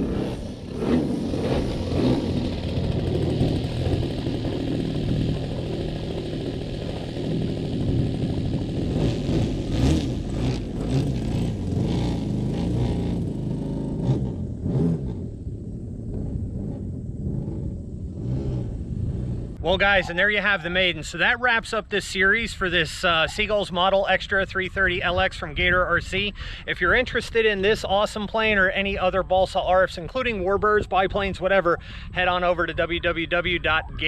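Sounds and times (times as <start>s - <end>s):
model plane engine running: 0.0s - 12.4s.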